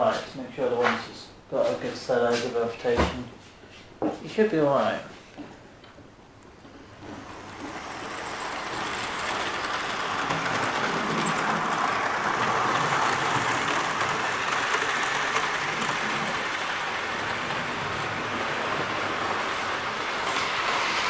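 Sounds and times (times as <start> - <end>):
wheels rolling on rail: 5.9 - 21.0
model train motor hum: 7.0 - 21.0.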